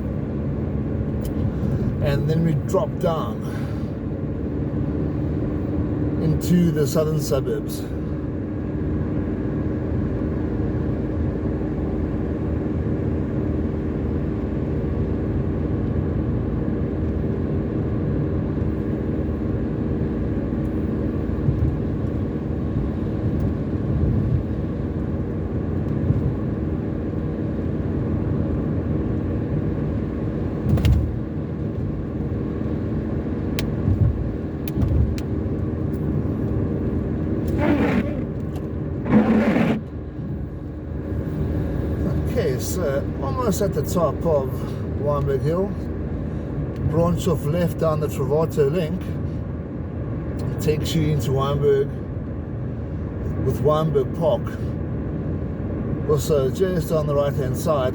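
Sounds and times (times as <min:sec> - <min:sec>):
car engine hum: 0:00.0 - 0:57.9
tyre rumble on road: 0:37.4 - 0:39.9.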